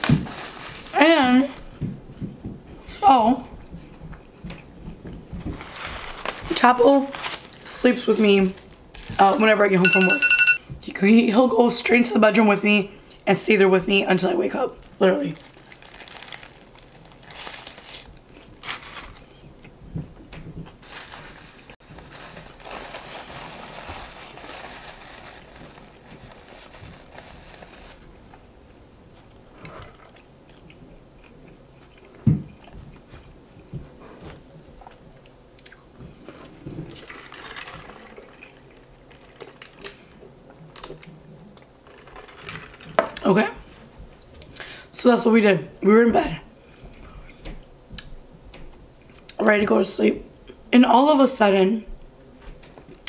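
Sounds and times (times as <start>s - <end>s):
paper wrapper rustling: 0.0s - 1.0s, 5.4s - 9.6s, 15.2s - 19.4s, 20.7s - 28.4s.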